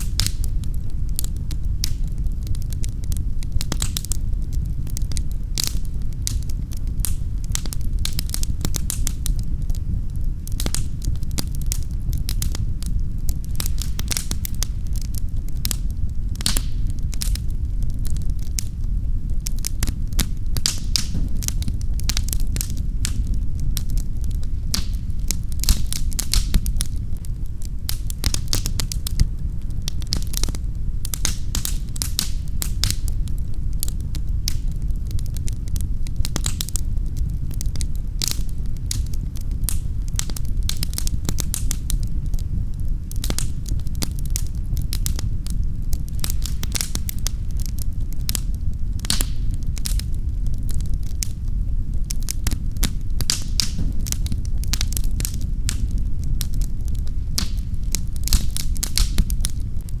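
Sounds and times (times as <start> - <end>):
wood fire crackling: 0.0 - 60.0.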